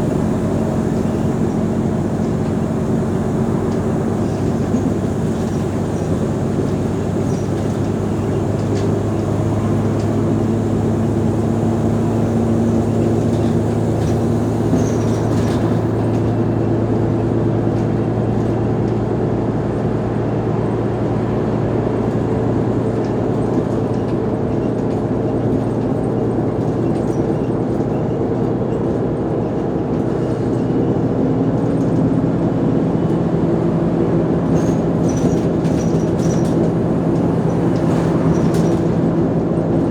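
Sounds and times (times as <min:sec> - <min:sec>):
bus diesel engine droning: 0:00.0 - 0:39.9.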